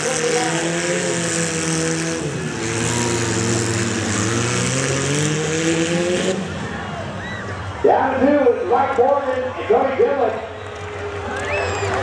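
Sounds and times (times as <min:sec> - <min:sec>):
small car engines revving: 0:00.0 - 0:07.8.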